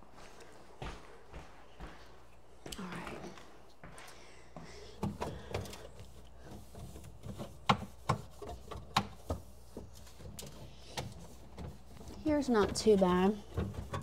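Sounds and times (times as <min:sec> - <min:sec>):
plastic drawers knocking and clacking: 0:12.6 - 0:14.0.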